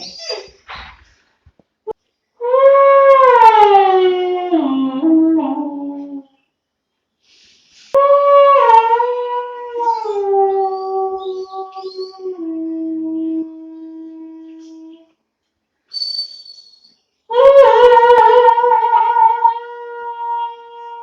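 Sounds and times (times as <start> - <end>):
puppy howling: 17.3 - 21.0.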